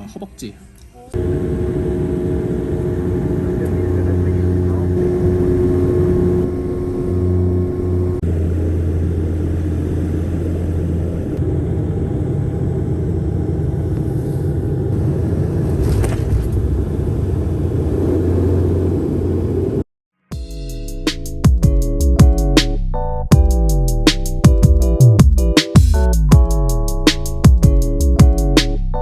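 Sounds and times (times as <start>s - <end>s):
vehicle engine humming: 1.2s - 19.9s.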